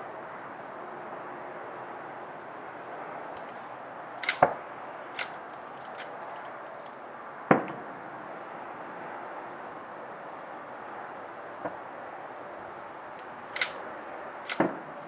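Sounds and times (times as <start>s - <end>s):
steady background noise: 0.0s - 15.0s
distant fireworks cracks and bangs: 7.4s - 8.4s, 11.6s - 12.0s.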